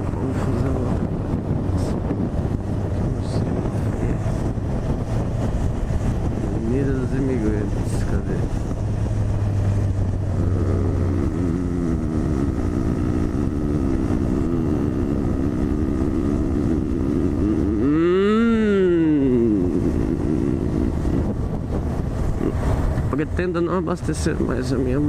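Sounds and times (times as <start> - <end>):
motorcycle engine running: 0.0 - 23.4
wind rushing over microphone: 0.0 - 25.0.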